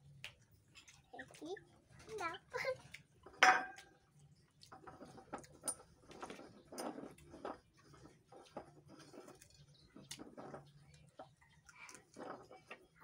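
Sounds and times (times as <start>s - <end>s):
chewing and lip-smacking: 3.8s - 12.2s.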